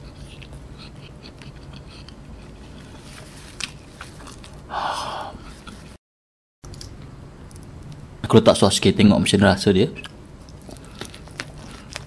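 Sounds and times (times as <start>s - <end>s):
close-up chewing: 0.0s - 4.7s, 10.0s - 12.0s
tissue rustling across mouth: 2.8s - 4.5s.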